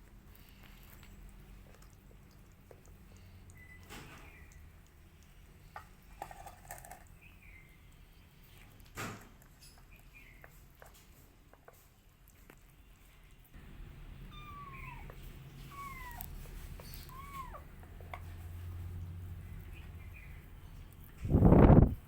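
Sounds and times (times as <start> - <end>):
low steady rumble: 13.6 - 22.0
kitten meowing: 14.3 - 17.7.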